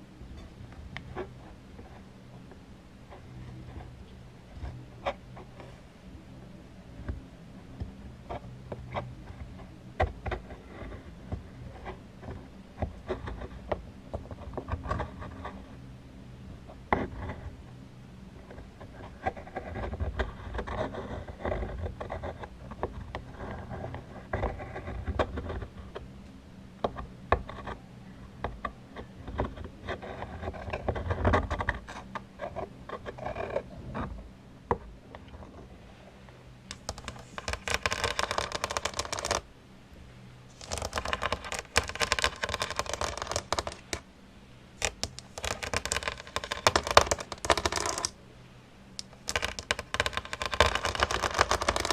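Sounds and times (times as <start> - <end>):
scratchy rubbing: 0.0 - 2.1, 7.8 - 15.8, 18.4 - 26.1, 26.9 - 34.2, 36.7 - 39.5, 40.5 - 44.0, 44.8 - 48.2, 49.0 - 51.9.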